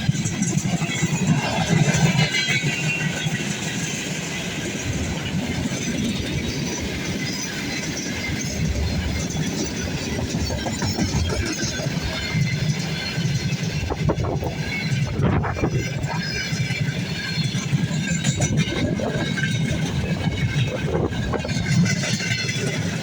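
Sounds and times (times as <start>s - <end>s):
train wheels clattering over rails: 0.0s - 23.0s.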